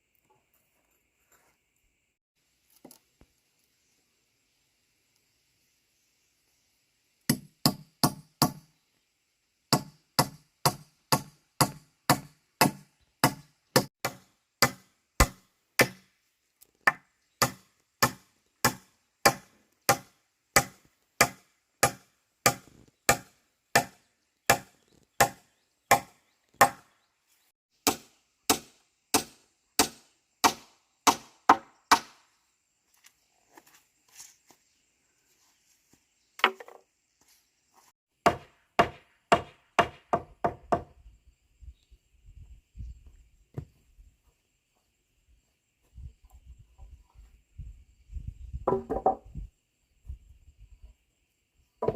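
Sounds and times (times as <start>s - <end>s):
chopping strikes: 9.7s - 16.1s, 16.9s - 26.9s, 27.8s - 32.2s.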